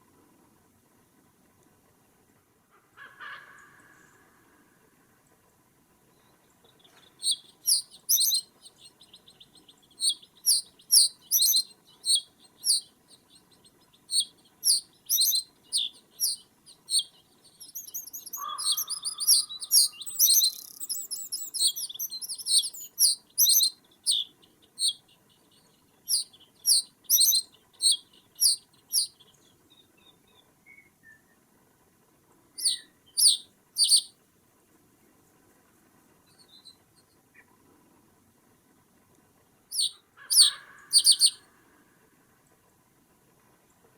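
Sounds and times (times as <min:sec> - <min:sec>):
small songbirds chirping: 0:06.1 - 0:31.5, 0:32.6 - 0:34.1, 0:39.7 - 0:41.4.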